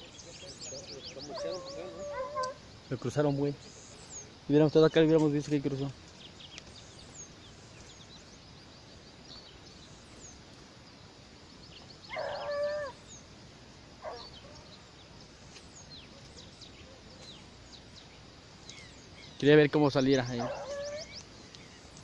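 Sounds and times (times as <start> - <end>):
faint high bird chirps: 0.0 - 10.5, 11.5 - 13.3, 14.0 - 22.0
animal calling loudly: 1.3 - 2.6, 20.4 - 21.2.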